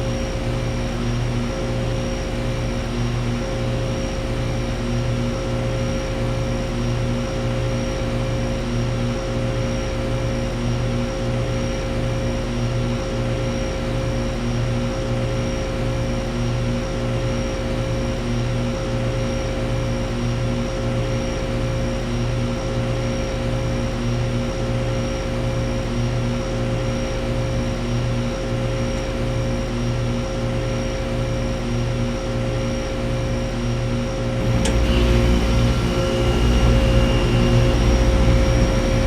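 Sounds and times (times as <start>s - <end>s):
air conditioner unit humming: 34.4s - 39.0s.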